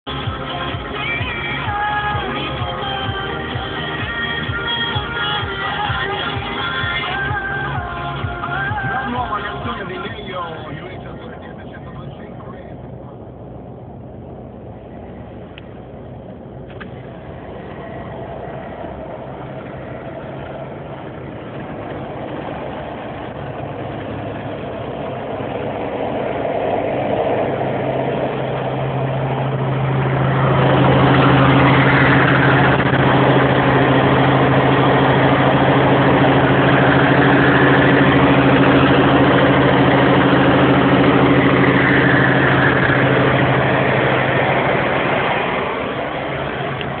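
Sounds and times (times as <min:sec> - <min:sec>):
truck diesel engine running: 0:00.0 - 0:47.0.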